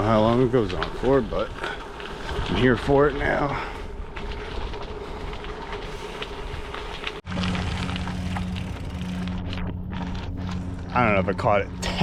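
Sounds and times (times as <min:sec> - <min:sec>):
steady low hum: 0:07.2 - 0:12.0.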